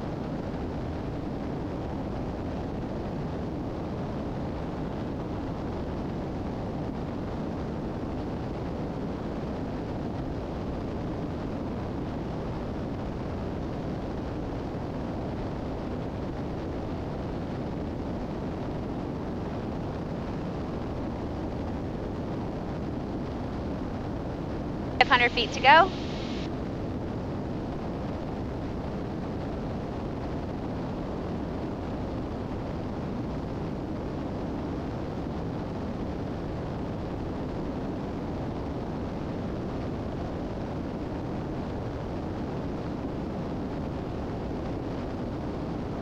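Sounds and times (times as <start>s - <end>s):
airplane cabin engine drone: 24.6s - 26.5s
airflow noise: 25.0s - 26.5s.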